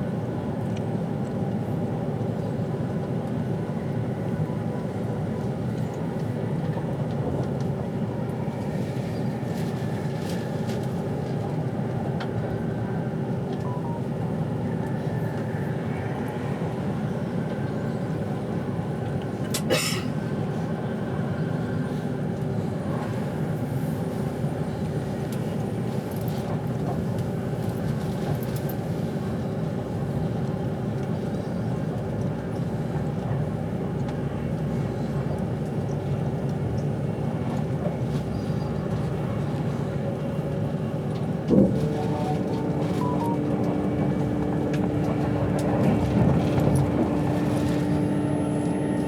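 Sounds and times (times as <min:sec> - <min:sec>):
train interior low rumble: 0:00.0 - 0:49.0
steady hum: 0:41.8 - 0:49.0.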